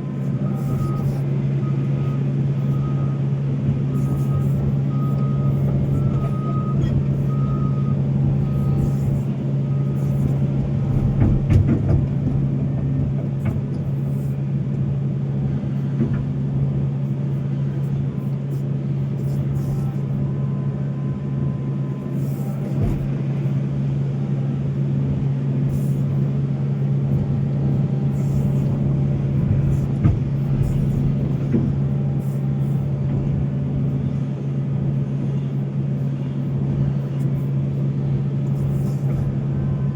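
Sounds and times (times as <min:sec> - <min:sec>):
warning alarm beeping: 0:00.0 - 0:10.9
excavator diesel engine running: 0:00.0 - 0:39.9
machine clunks: 0:09.9 - 0:14.0.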